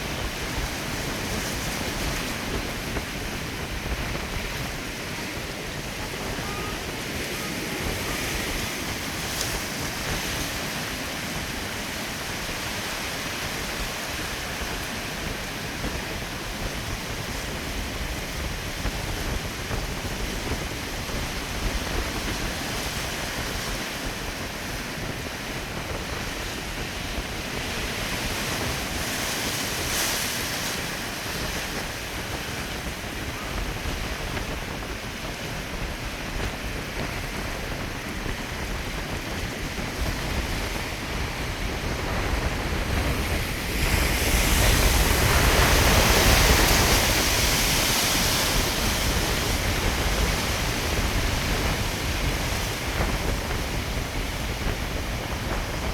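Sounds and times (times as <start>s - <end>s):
storm wind buffeting microphone: 0.0s - 55.9s
surf breaking: 24.6s - 55.9s.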